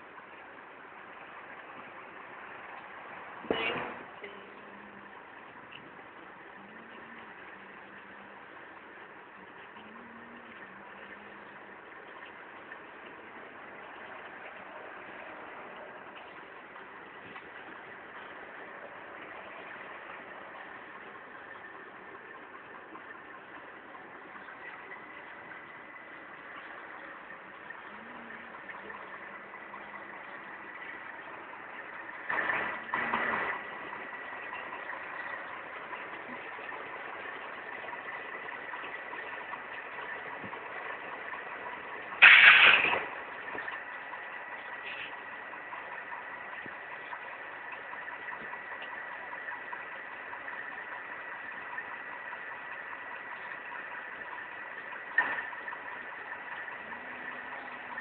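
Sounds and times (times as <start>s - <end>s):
engine idling with whine: 0.0s - 58.0s
short loud noise bursts: 42.2s - 43.1s.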